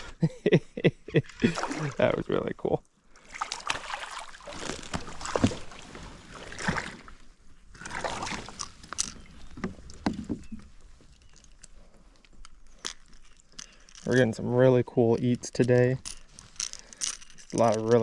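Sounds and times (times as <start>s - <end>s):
water splashing against kayak: 3.1s - 12.1s.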